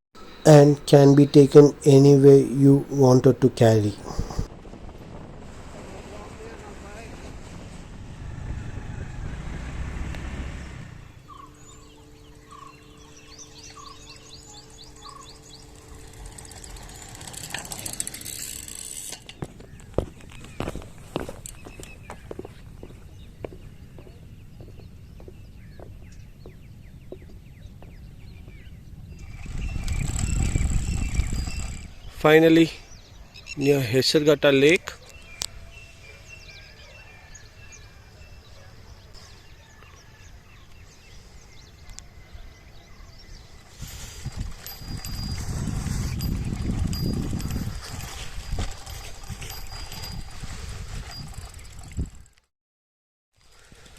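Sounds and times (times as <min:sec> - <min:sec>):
birds chirping: 0:00.2 - 0:04.5, 0:10.6 - 0:17.5, 0:19.4 - 0:50.3
low outdoor rumble: 0:00.2 - 0:11.8
road and wind noise: 0:00.2 - 0:33.6, 0:39.0 - 0:52.4
bird chirping: 0:11.1 - 0:17.0
bicycle freewheel ratcheting: 0:15.3 - 0:19.4, 0:43.7 - 0:52.4.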